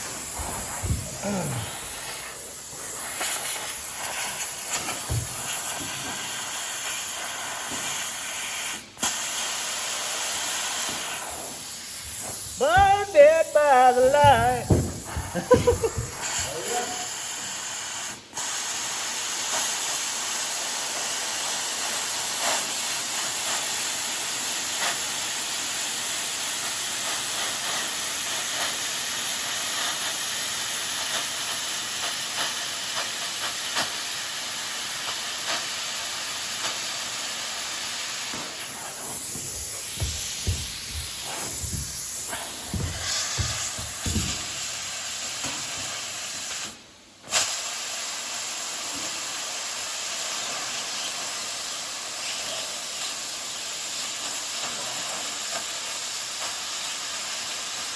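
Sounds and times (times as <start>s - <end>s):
plasma cutter hissing: 0.0s - 57.9s
low knocks: 14.2s - 16.2s, 39.3s - 44.6s.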